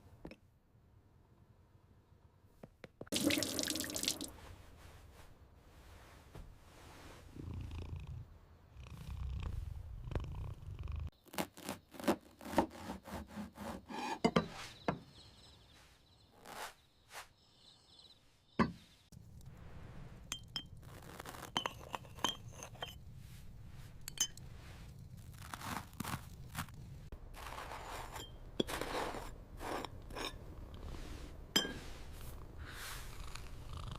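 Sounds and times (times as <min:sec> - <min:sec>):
cat purring: 0:07.1 - 0:11.1, 0:32.0 - 0:33.9
glass jars and utensils clinking: 0:21.5 - 0:23.0, 0:31.6 - 0:31.8.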